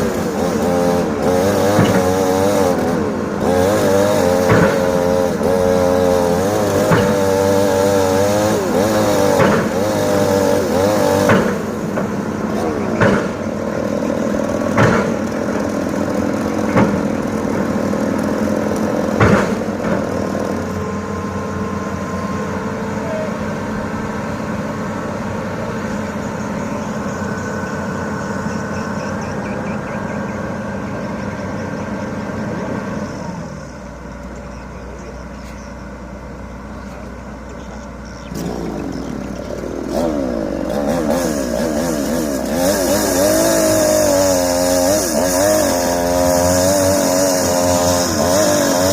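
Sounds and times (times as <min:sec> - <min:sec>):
revving motor: 0:00.0 - 0:35.7, 0:36.7 - 0:48.9
excavator engine running: 0:00.0 - 0:48.9.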